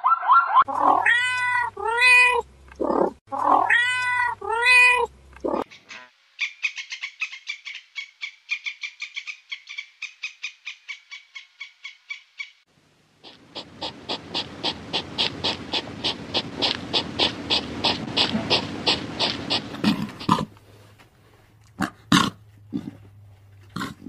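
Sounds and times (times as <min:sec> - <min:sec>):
pulsing animal call: 0:13.2 - 0:20.5
squirrel chattering: 0:13.2 - 0:20.5.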